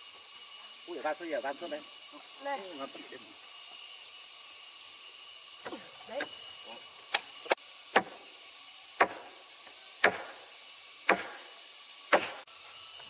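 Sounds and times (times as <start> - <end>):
faint high hiss: 0.0 - 13.0
tool striking wood: 7.9 - 8.2, 9.0 - 9.4, 10.0 - 10.4, 11.1 - 11.5, 12.1 - 12.4.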